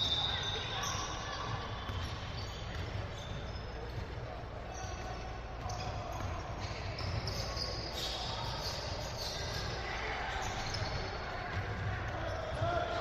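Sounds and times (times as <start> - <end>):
shoe squeaks: 0.0 - 11.3
basketball bouncing on court: 0.8 - 7.8, 10.5 - 13.0.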